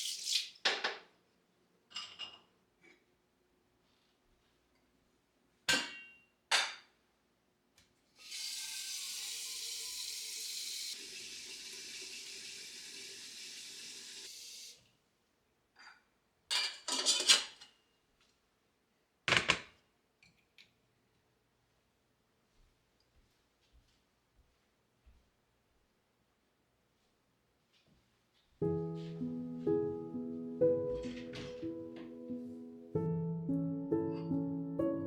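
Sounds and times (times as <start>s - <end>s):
dishes clinking: 1.9s - 3.0s, 15.8s - 17.8s
water running into vessel: 8.2s - 14.8s.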